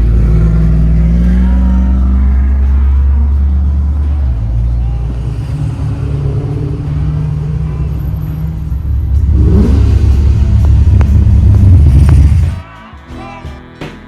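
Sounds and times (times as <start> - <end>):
car engine running: 0.0 - 12.6.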